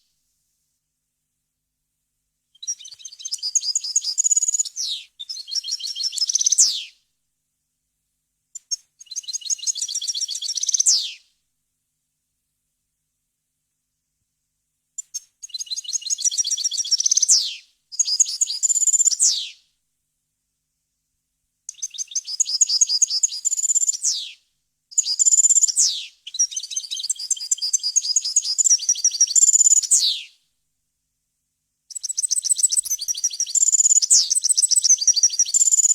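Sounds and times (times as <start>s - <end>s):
goldfinch twittering song: 31.9s - 35.9s.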